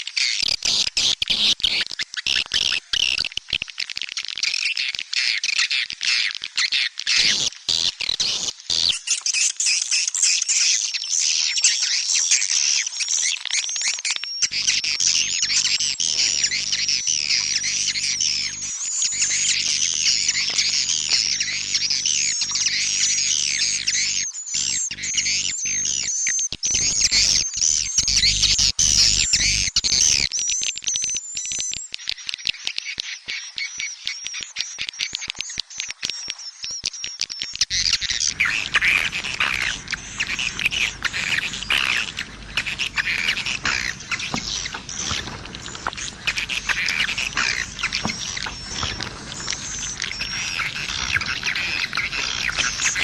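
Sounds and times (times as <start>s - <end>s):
faint low hum: 14.5s - 24.2s, 37.8s - 53.0s
swiftlets chirping: 37.7s - 53.0s.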